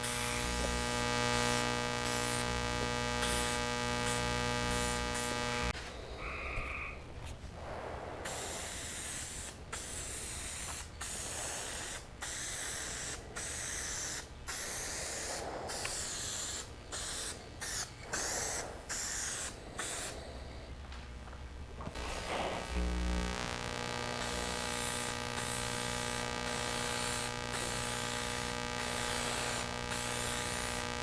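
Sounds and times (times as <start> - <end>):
aerosol spray can hissing: 8.2 - 20.2, 22.0 - 22.7, 24.2 - 31.0.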